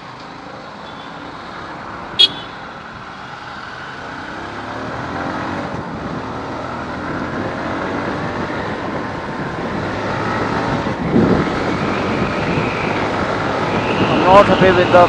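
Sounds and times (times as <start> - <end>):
wind noise: 5.5 - 15.0.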